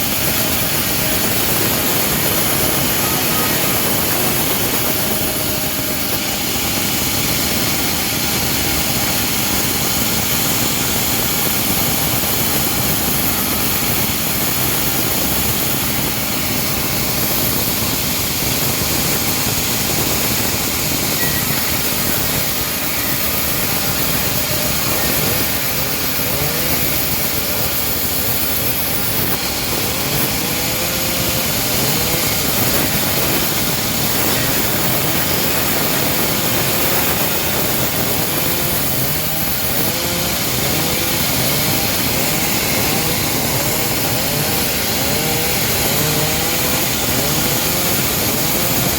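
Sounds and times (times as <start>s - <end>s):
bandsaw sawing log: 0.0s - 48.9s.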